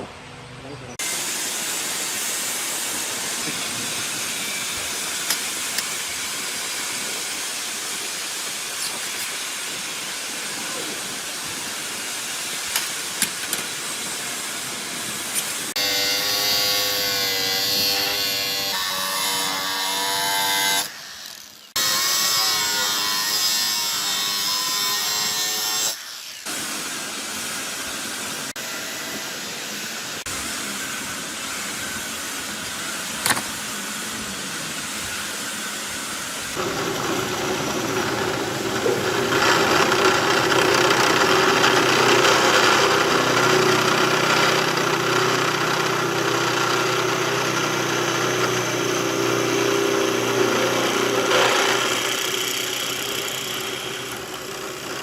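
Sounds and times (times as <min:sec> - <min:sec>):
power tool cutting noise: 0:01.0 - 0:55.0
power tool motor whine: 0:12.7 - 0:55.0.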